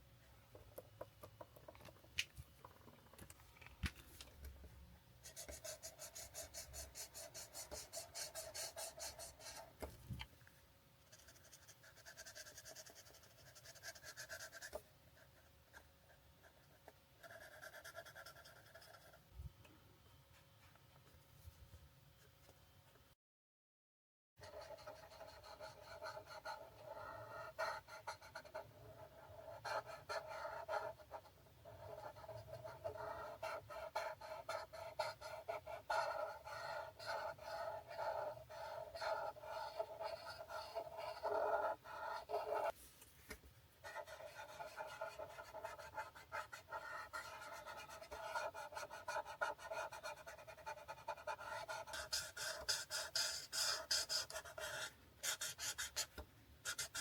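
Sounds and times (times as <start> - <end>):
marker scratching on paper: 5.2 - 9.7, 24.4 - 42.7, 43.8 - 57.0.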